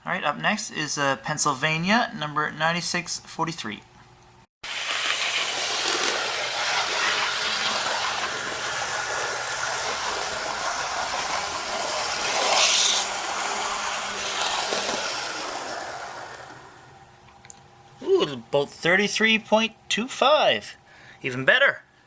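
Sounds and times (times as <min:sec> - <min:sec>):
model train running on track: 0:04.7 - 0:17.0.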